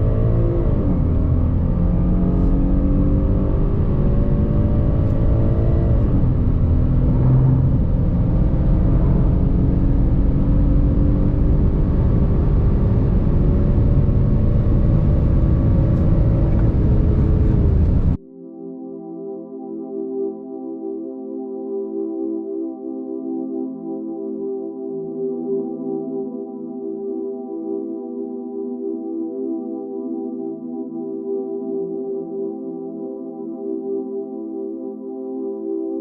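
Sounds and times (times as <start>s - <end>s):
car engine accelerating: 0.0s - 18.2s
road and wind rumble: 0.0s - 18.2s.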